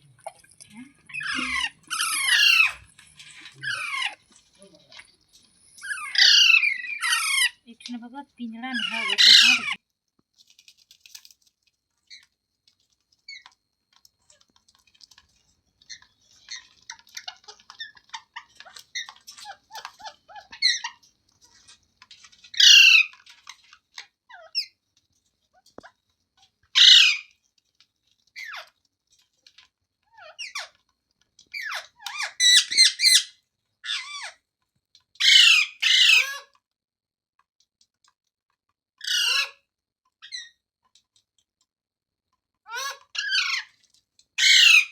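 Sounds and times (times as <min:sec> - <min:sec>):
parakeet screeching and chattering: 0:00.3 - 0:07.6, 0:08.6 - 0:09.8, 0:15.8 - 0:24.8, 0:26.7 - 0:27.4, 0:28.3 - 0:28.8, 0:30.1 - 0:30.8, 0:31.5 - 0:34.4, 0:35.2 - 0:36.6, 0:39.0 - 0:39.6, 0:40.2 - 0:40.6, 0:42.7 - 0:43.8, 0:44.4 - 0:44.9.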